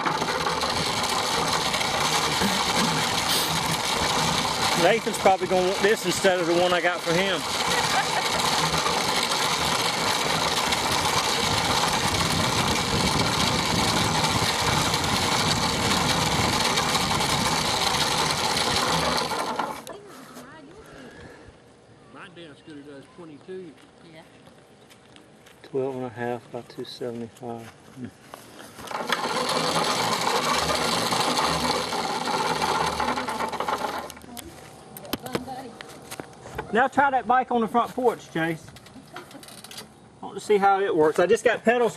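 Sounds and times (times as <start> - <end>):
small machine whirring and rattling: 0.0 - 20.0, 28.8 - 36.4, 38.4 - 39.9
mini dirt bike engine running: 0.0 - 20.6, 28.7 - 35.7, 38.8 - 39.9.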